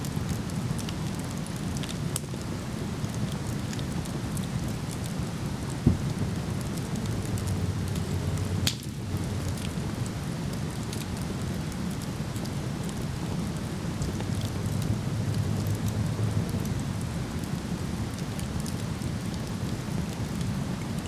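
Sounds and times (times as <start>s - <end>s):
campfire crackling and popping: 0.0s - 21.0s
dull thump: 5.8s - 6.1s.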